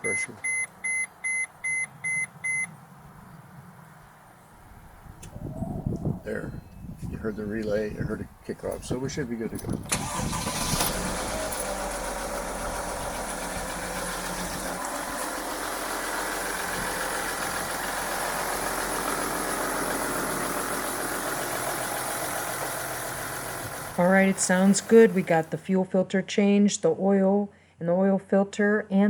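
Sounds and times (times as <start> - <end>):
diesel engine idling: 7.3 - 25.6.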